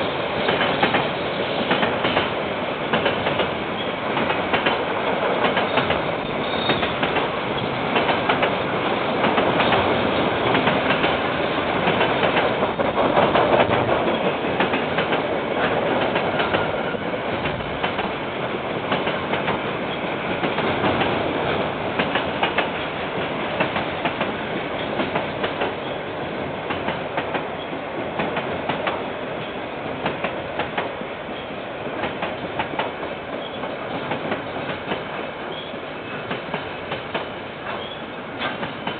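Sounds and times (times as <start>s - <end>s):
train rumble: 0.0s - 38.9s
train wheels clacking over rail joints: 0.4s - 26.0s, 26.6s - 38.9s.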